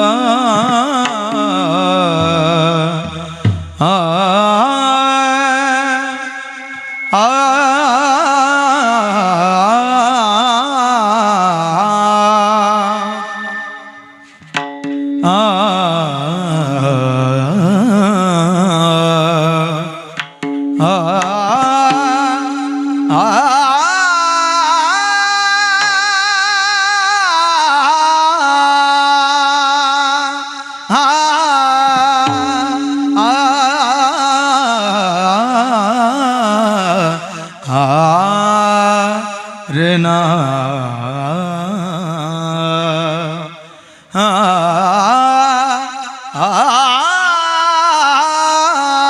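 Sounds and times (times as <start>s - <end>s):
man singing melismatic phrases: 0.0s - 13.3s, 20.8s - 49.0s
held drone note: 0.0s - 17.0s, 20.7s - 26.6s, 32.0s - 36.2s
singer breathing: 43.7s - 44.2s.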